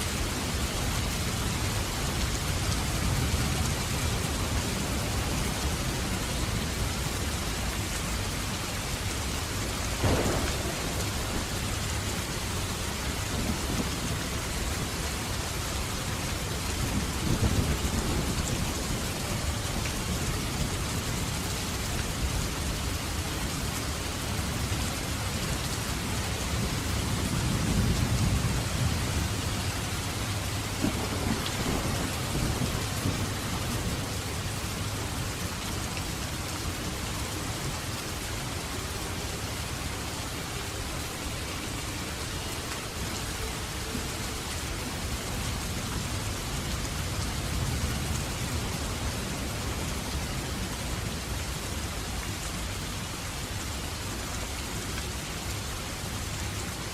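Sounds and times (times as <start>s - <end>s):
heavy rain: 0.0s - 56.9s
low rolling thunder rumbles: 9.8s - 23.0s, 26.1s - 35.6s
thunder crack: 10.0s - 11.7s.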